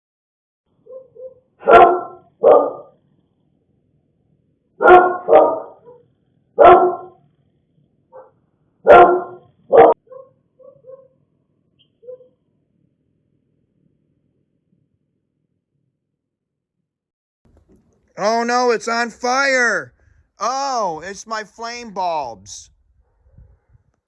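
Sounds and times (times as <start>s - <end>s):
dog barking: 0.8s - 3.0s, 4.8s - 7.2s, 8.2s - 11.2s, 12.0s - 12.4s
faint dog yips: 0.9s - 1.8s, 9.8s - 11.1s, 12.0s - 12.4s.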